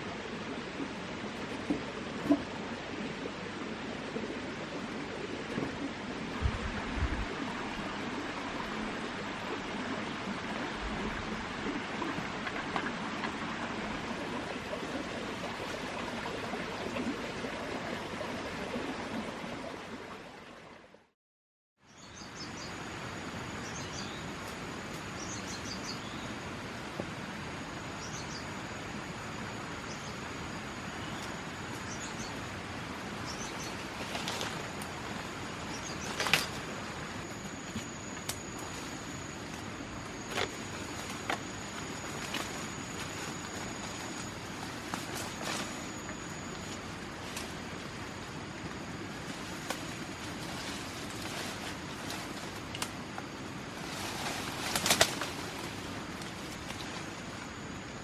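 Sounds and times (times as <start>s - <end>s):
outdoor background hiss: 0.0s - 21.0s, 21.8s - 58.0s
rustle: 21.9s - 58.0s
high insect drone: 22.2s - 58.0s.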